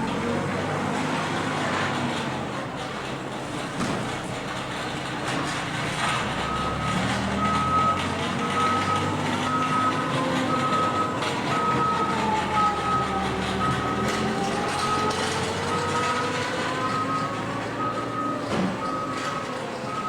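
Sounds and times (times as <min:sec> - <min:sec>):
reversing alarm beeping: 0:06.4 - 0:20.0.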